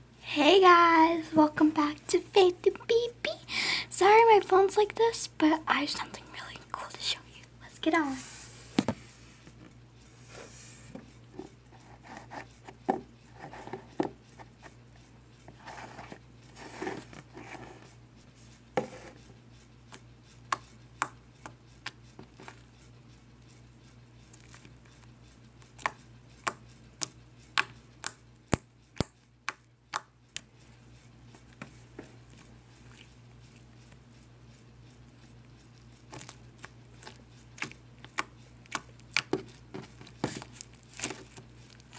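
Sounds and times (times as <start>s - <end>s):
slime squishing: 35.8s - 41.9s.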